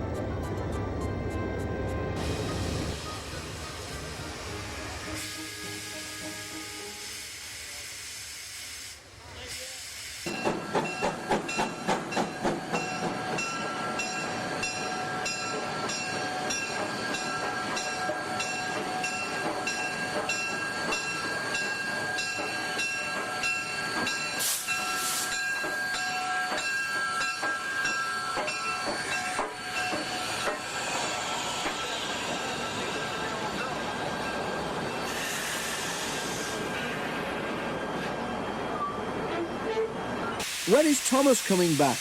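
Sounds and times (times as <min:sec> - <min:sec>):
train running: 0:00.0 - 0:42.0
steam locomotive chuffing: 0:02.1 - 0:37.8, 0:39.7 - 0:42.0
steam hiss bursts: 0:02.2 - 0:11.5, 0:24.4 - 0:25.5, 0:35.0 - 0:37.0, 0:40.4 - 0:42.0.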